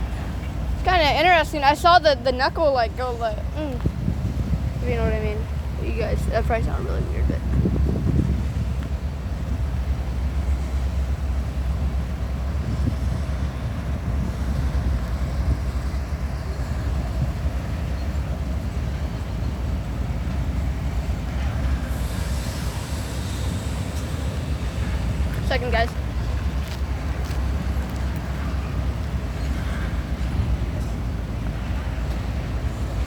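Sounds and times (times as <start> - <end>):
diesel locomotive rumbling: 0.0 - 33.0
hiss: 21.6 - 25.4.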